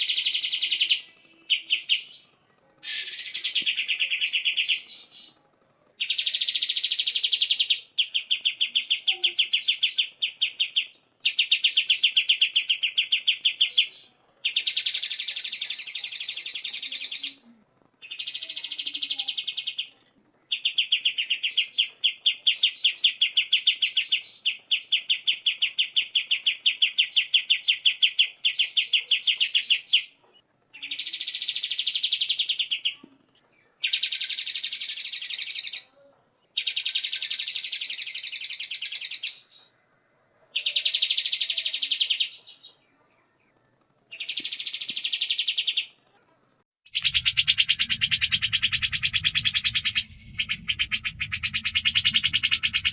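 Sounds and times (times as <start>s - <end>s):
bird chattering trills: 2.8s - 4.9s, 46.9s - 52.9s.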